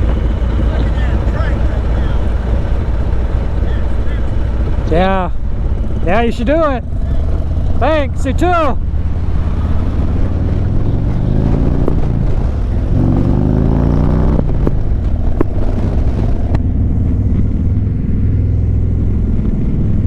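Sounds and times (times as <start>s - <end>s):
motorcycle engine idling: 0.0s - 13.1s
vehicle accelerating nearby: 0.0s - 20.0s.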